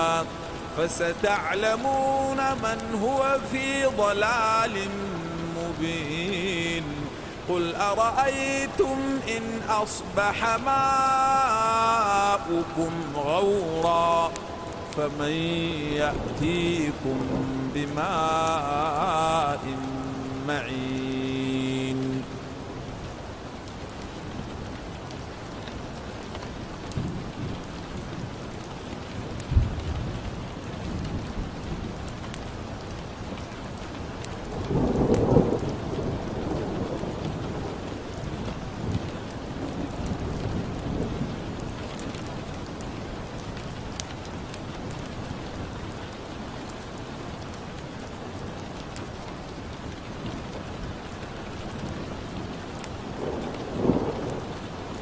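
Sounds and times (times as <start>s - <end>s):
steady rain: 0.0s - 55.0s
wood fire crackling: 0.0s - 55.0s
low rolls of thunder: 29.4s - 32.2s, 34.5s - 42.5s, 51.8s - 55.0s.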